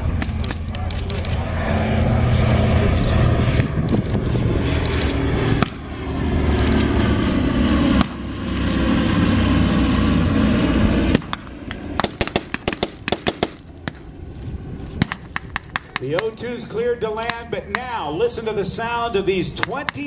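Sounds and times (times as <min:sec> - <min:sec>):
propeller aircraft engines droning: 0:00.0 - 0:20.0
sharp cracks and pops: 0:00.1 - 0:01.4, 0:15.0 - 0:16.3.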